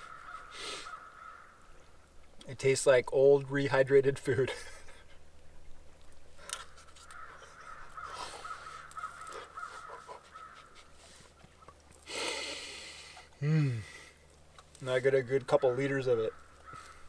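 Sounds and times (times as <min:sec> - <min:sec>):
faint bird calls: 0:00.0 - 0:02.1, 0:04.9 - 0:14.2, 0:15.6 - 0:17.0.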